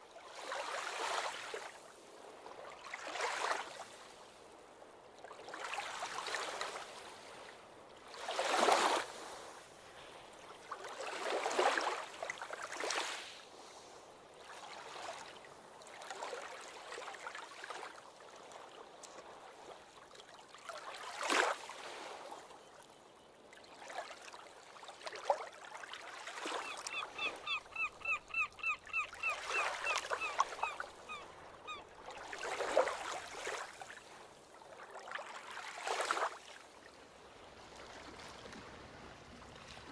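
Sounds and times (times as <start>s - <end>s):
ocean waves washing in: 36.2s - 39.9s.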